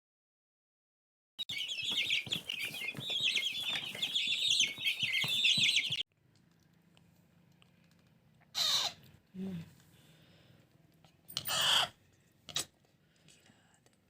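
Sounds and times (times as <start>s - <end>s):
parakeet chicks begging calls: 1.4s - 6.0s, 8.6s - 9.0s.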